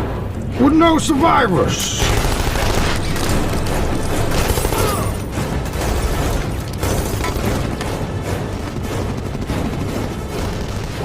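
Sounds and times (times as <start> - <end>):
dramatic orchestral music: 0.0 - 11.0
aircraft rumble: 2.7 - 11.0.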